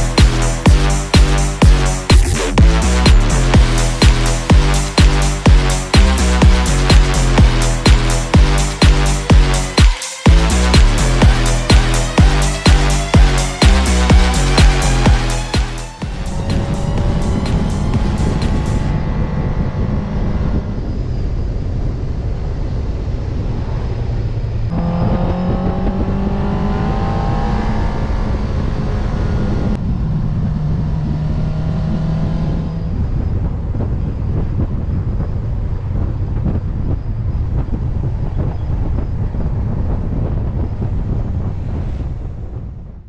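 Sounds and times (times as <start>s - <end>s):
motorcycle engine revving: 0.0s - 21.4s, 24.5s - 34.2s
wind rumble: 1.6s - 43.0s.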